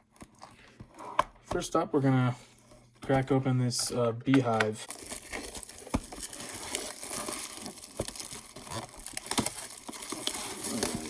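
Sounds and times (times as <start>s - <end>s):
plastic shrink wrap crinkling: 4.8s - 11.0s.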